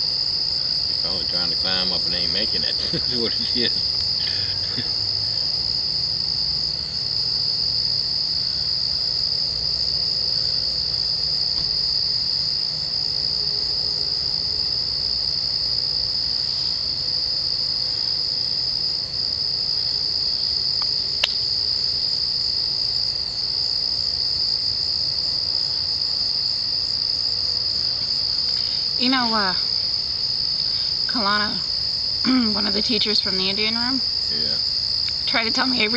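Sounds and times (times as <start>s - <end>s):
insects chorus: 0.0s - 35.9s
sharp click: 20.8s - 21.4s.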